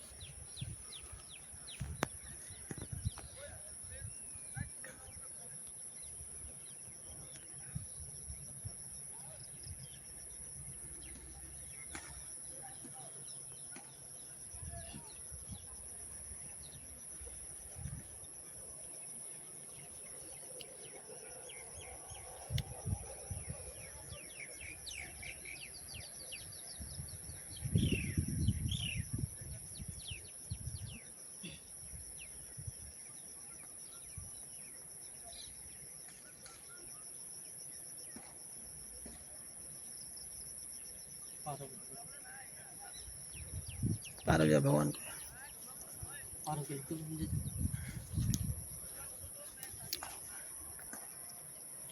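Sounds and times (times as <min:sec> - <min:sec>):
high insect buzz: 0:42.9 - 0:51.9.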